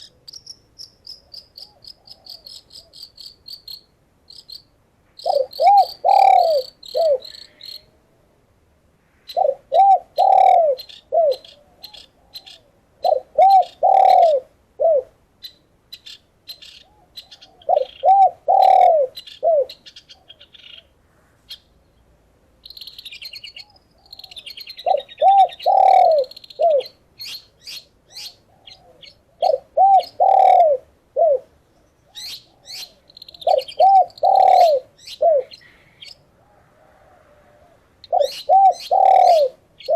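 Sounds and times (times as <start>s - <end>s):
songbirds chirping: 0.0s - 39.9s
dove cooing: 1.6s - 3.0s, 5.2s - 8.2s, 9.3s - 15.2s, 16.8s - 20.9s, 23.5s - 27.4s, 28.1s - 39.9s.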